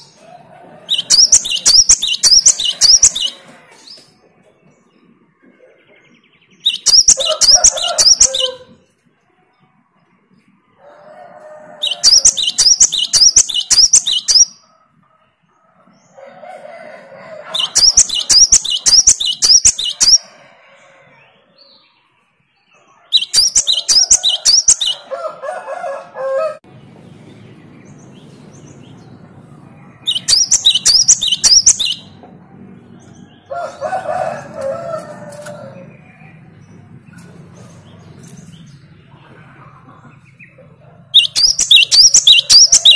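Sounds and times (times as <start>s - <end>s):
soft bird chattering: 0.9s - 3.4s, 6.7s - 8.6s, 11.8s - 14.6s, 17.5s - 20.2s, 23.2s - 25.0s, 30.1s - 32.2s, 41.2s - 42.9s
bird singing ringing notes: 11.8s - 14.6s, 30.0s - 32.2s, 41.2s - 42.9s.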